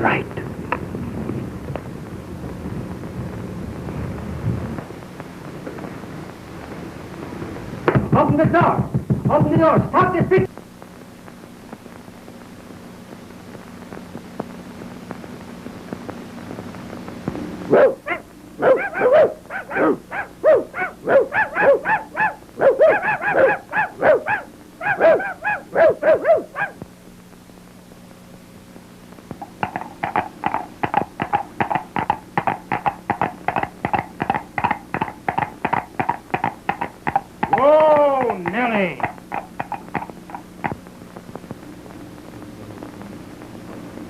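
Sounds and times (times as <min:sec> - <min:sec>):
faint hum: 0:00.0 - 0:44.0
dog barking: 0:17.7 - 0:26.8, 0:39.0 - 0:40.1
dog yapping: 0:17.7 - 0:26.8, 0:29.6 - 0:40.4.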